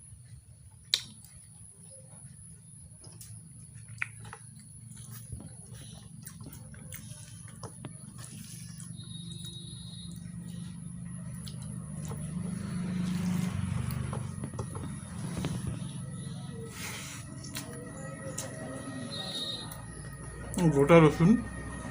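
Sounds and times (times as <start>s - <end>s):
steady low hum: 0.0s - 21.9s
wet squelchy eating sounds: 3.6s - 19.0s.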